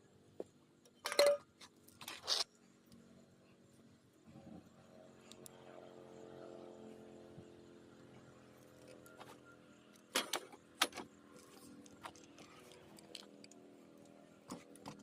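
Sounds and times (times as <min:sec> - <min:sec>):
scrap metal clinking and rattling: 0:01.0 - 0:02.3.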